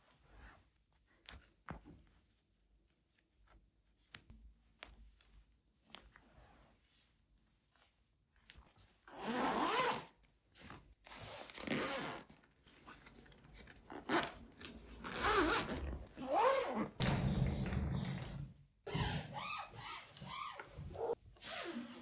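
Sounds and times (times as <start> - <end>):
zipper rasping open and shut: 9.1 - 17.0, 18.9 - 22.0.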